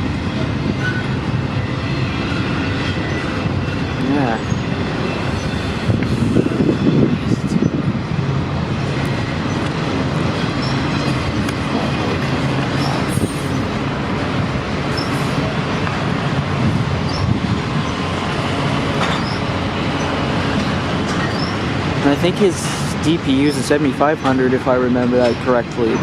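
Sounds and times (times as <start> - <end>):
train wheels rumbling on rails: 0.0 - 26.0
faint wheel squeals: 0.8 - 1.2, 14.9 - 15.9, 19.1 - 20.1, 21.2 - 21.6.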